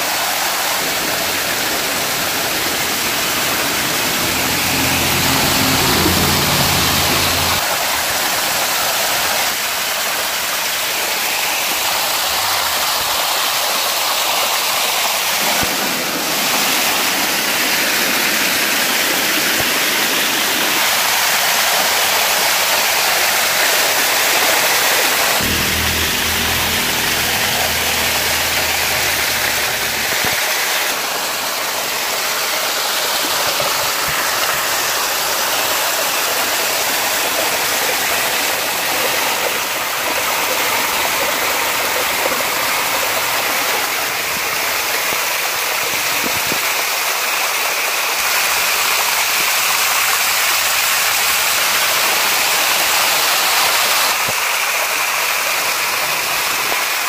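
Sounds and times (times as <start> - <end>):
floodwater rushing: 0.0 - 57.0
low hum: 1.2 - 7.6, 25.4 - 30.9.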